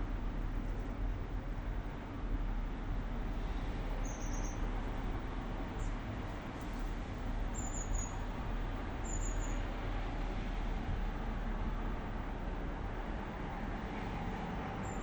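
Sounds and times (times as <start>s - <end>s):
traffic rumble: 0.0s - 15.0s
bird chirps: 4.0s - 4.6s, 7.6s - 8.2s.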